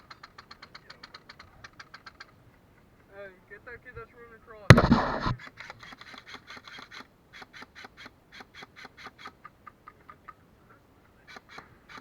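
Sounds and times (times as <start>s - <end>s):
airsoft gunfire pops: 4.7s - 5.4s.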